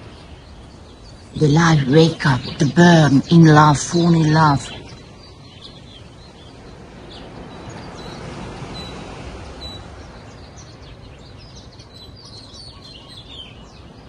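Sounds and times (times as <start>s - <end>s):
birds chirping and calling: 0.0s - 14.0s
steady background noise: 0.0s - 14.0s.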